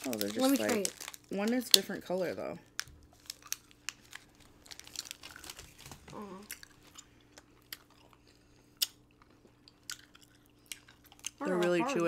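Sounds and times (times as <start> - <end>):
chewing candy: 0.0 - 1.8, 2.6 - 12.0
person humming: 6.1 - 6.5, 11.4 - 12.0
wet mouth clicks and smacks: 8.8 - 9.0.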